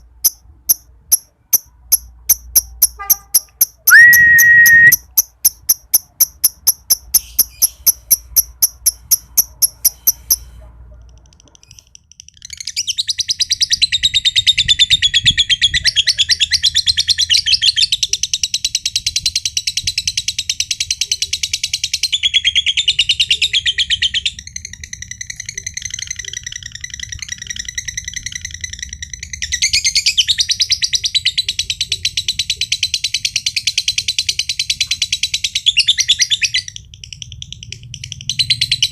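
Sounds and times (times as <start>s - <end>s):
lovebird calling sharp ticks: 0.0s - 10.4s
lovebird rapid chatter: 0.0s - 10.4s.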